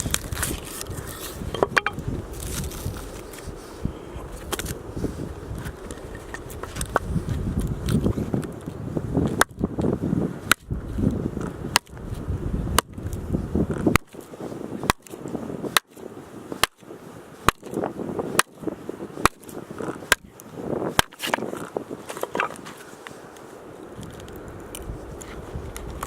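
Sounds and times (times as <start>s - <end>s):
axe chopping firewood: 1.6s - 2.0s, 10.4s - 10.7s, 11.7s - 12.0s, 14.9s - 16.0s, 16.6s - 16.8s, 17.4s - 18.6s, 19.2s - 20.3s, 20.9s - 22.6s.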